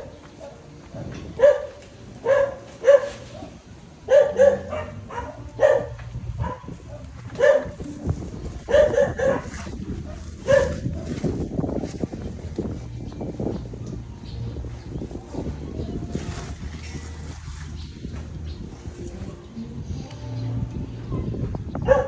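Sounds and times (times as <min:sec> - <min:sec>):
dog barking: 0:00.4 - 0:07.8, 0:08.7 - 0:11.2.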